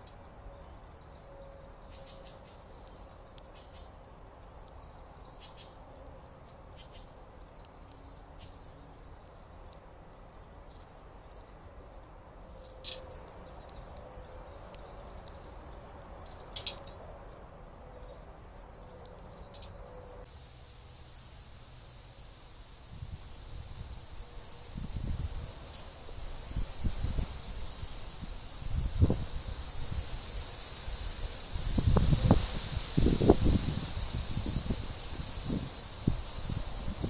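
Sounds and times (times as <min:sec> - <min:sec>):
small birds chirping: 0:00.0 - 0:20.3
steady low background noise: 0:00.0 - 0:37.0.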